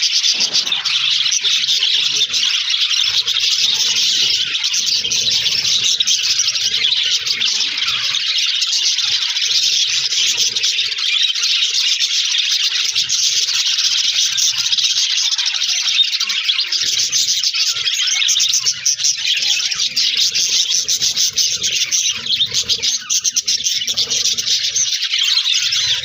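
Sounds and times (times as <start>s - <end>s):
budgerigars chattering and chirping: 0.0s - 26.0s.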